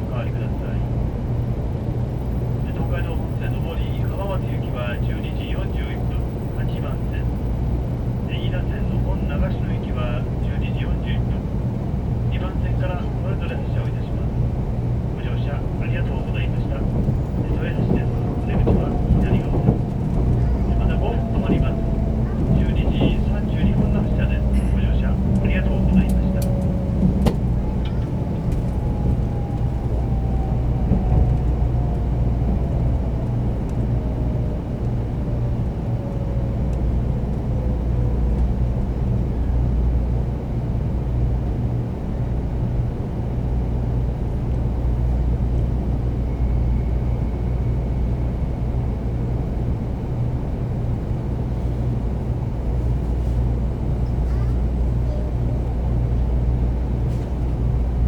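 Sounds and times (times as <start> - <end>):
train cabin low rumble: 0.0 - 58.0.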